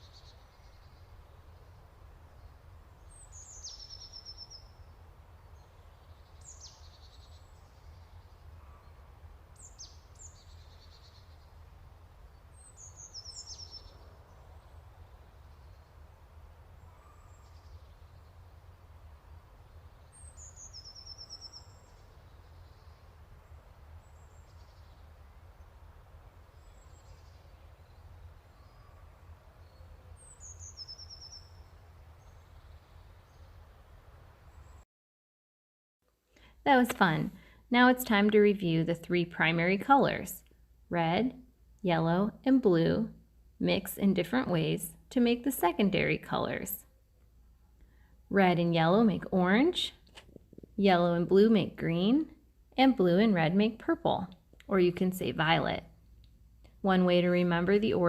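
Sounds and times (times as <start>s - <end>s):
bird singing faintly: 0.0s - 9.0s, 12.2s - 16.0s, 16.8s - 25.7s, 26.5s - 33.6s.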